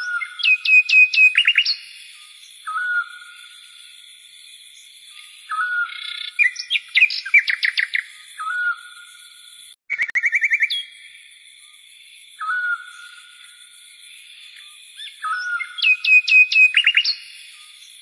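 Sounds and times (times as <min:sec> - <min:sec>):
fast chirping bird trills: 0:00.0 - 0:02.0, 0:05.5 - 0:08.9, 0:09.9 - 0:11.0, 0:15.0 - 0:18.0.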